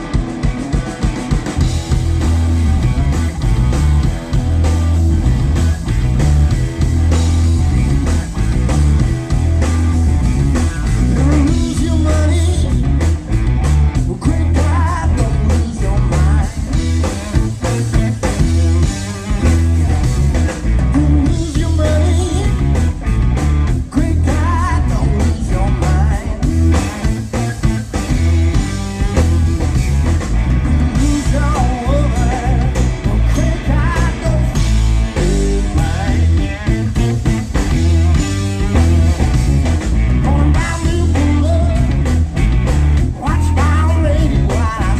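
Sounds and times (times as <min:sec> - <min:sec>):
blues-rock band playing: 0:00.0 - 0:44.9.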